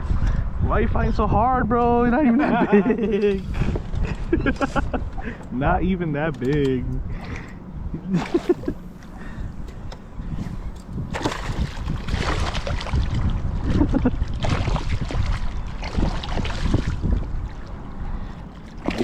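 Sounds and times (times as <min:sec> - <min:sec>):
steady low rumble: 0:00.0 - 0:19.0
water sloshing and splashing: 0:07.1 - 0:09.9, 0:11.0 - 0:19.0.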